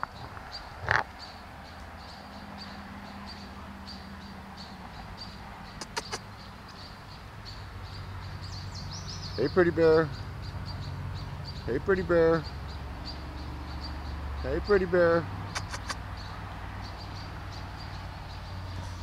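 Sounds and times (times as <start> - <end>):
bird chirping: 0.0 - 19.0
sharp clicks: 5.8 - 6.2, 15.5 - 16.0.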